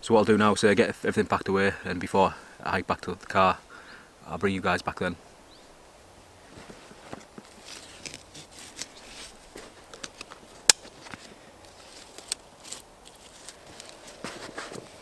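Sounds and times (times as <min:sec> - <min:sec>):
gear rustling: 0:06.5 - 0:15.0.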